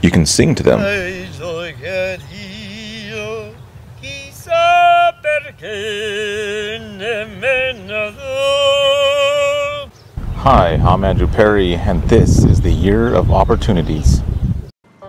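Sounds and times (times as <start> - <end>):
man singing operatic tenor: 0.6 - 11.2.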